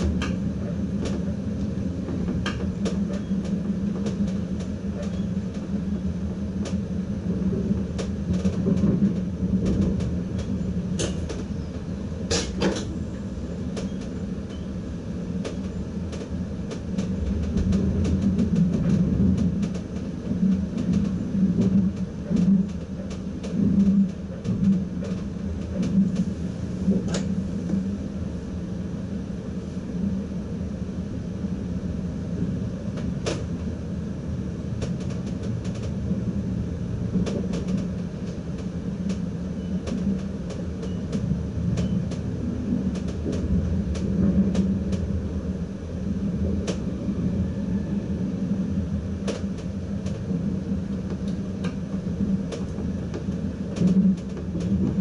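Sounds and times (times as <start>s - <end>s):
train running rumble and hum: 0.0s - 55.0s.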